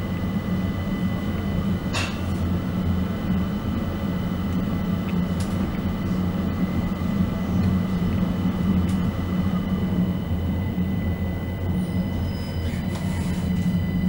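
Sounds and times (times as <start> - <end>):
faint high whine: 6.0 - 14.0.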